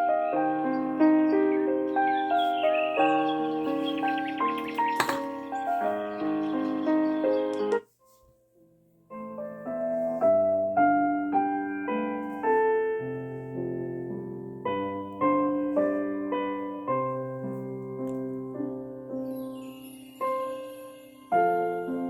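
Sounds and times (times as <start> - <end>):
piano lullaby through small speaker: 0.0 - 22.0.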